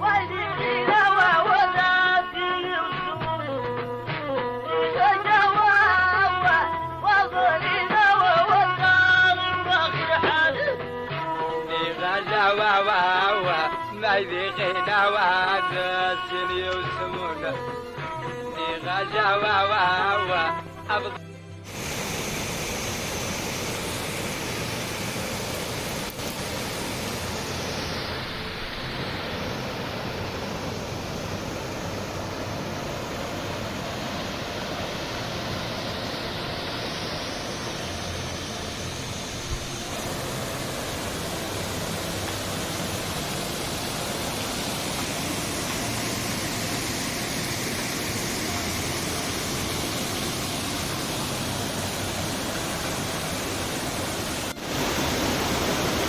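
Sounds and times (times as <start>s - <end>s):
waterfall rushing: 21.7s - 56.0s.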